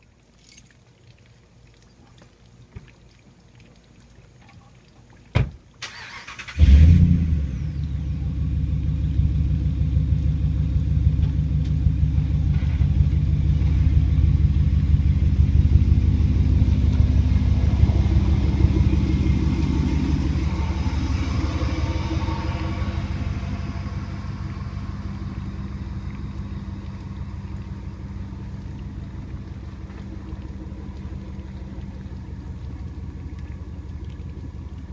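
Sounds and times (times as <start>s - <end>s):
engine cranking: 5.8s - 6.9s
engine starting and idling: 5.8s - 25.3s.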